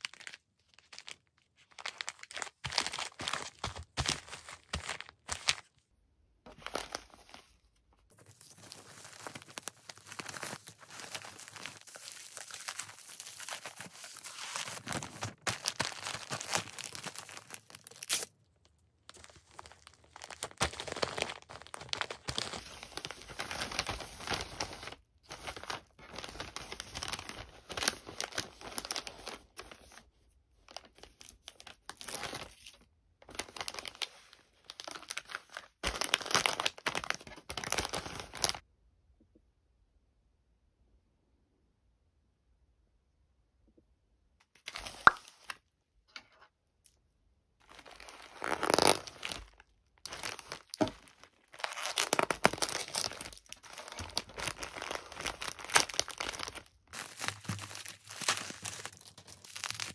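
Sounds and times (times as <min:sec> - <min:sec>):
plastic packaging crinkling: 0:00.0 - 0:05.7, 0:08.1 - 0:18.3, 0:19.1 - 0:30.0, 0:30.7 - 0:38.6, 0:47.6 - 0:59.9.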